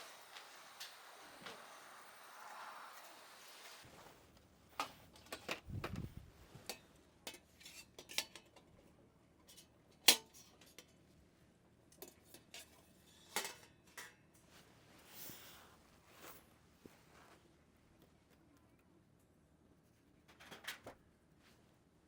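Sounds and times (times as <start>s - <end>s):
metal camping gear clinking: 4.7s - 8.7s, 11.9s - 14.6s.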